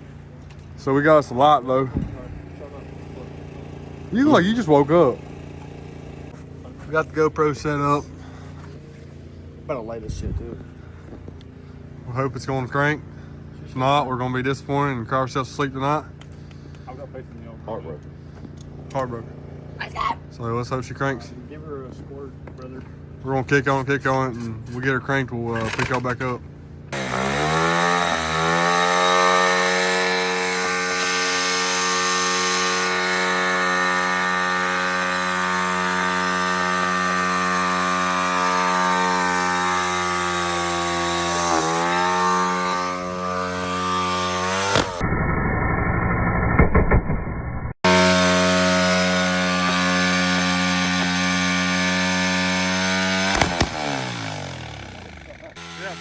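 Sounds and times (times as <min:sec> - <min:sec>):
dirt bike engine revving: 0:26.9 - 0:45.1, 0:47.8 - 0:56.0.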